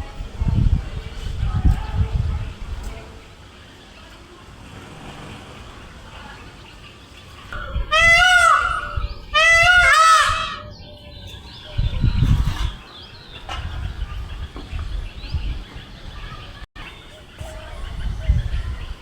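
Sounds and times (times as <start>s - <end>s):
peacock calling: 6.4s - 14.5s.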